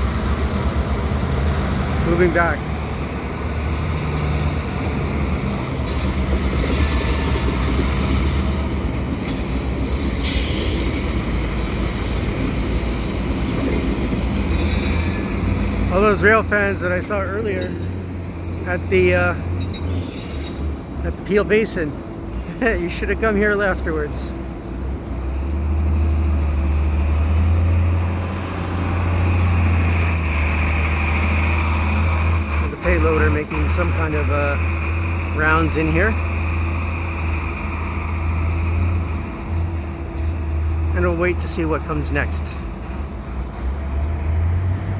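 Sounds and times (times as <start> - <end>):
diesel locomotive engine droning: 0.0 - 44.9.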